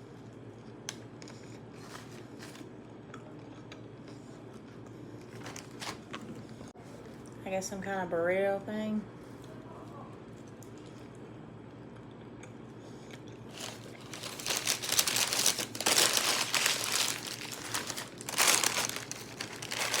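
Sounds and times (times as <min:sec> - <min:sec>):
food wrapper crinkling: 0:05.3 - 0:06.2, 0:13.5 - 0:20.0.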